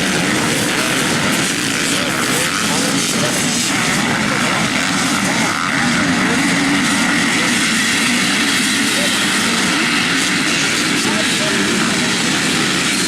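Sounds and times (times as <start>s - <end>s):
motocross bikes revving: 0.0s - 13.0s.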